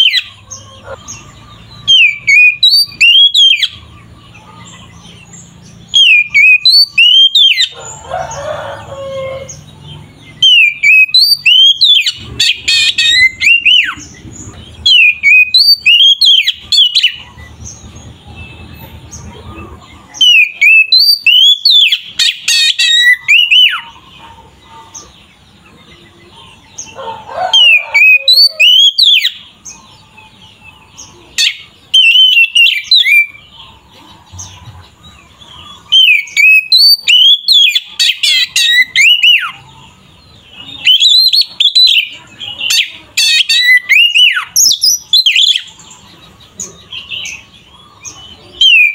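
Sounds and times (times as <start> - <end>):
bird singing whistled notes: 0.0 - 7.7, 10.3 - 19.0, 20.2 - 23.9, 31.4 - 33.5, 35.8 - 39.6, 40.6 - 45.8, 48.6 - 48.9.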